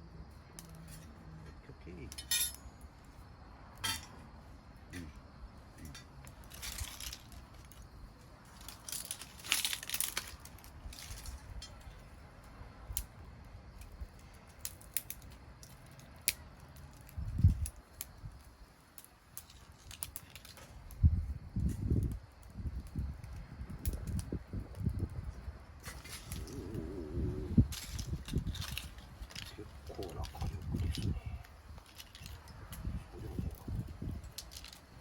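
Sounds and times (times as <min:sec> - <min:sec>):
wood fire crackling: 0:00.0 - 0:35.0
crinkling and rustling: 0:05.8 - 0:12.1, 0:19.3 - 0:21.0, 0:25.8 - 0:35.0.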